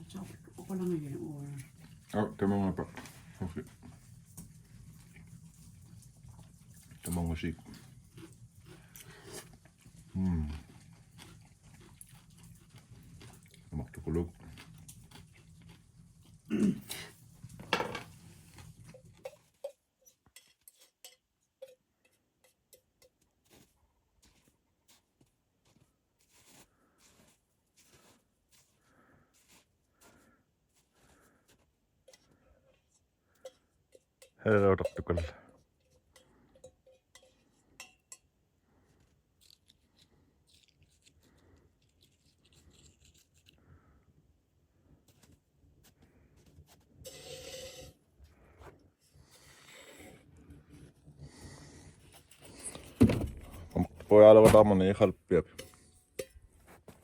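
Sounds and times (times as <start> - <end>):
dishes and cutlery clinking: 16.7 - 23.6, 33.3 - 38.3, 55.4 - 56.9.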